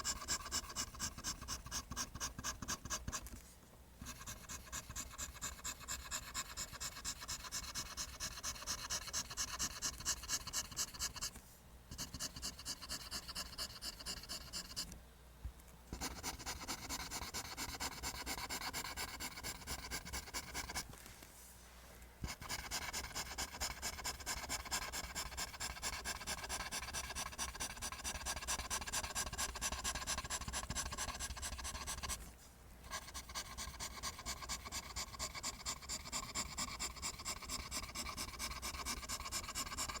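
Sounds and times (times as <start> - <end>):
pencil scratching on paper: 0.0 - 3.4, 4.0 - 11.3, 11.9 - 14.9, 16.0 - 20.9, 22.2 - 32.2, 32.8 - 40.0.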